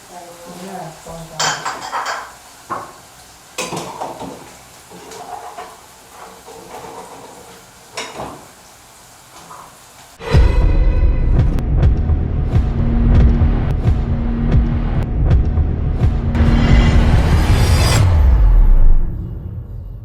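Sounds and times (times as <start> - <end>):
frying sizzle: 0.0 - 10.4.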